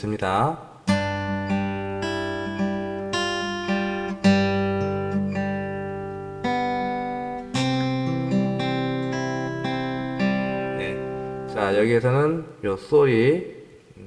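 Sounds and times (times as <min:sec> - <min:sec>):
fingerstyle acoustic guitar: 0:00.8 - 0:11.9.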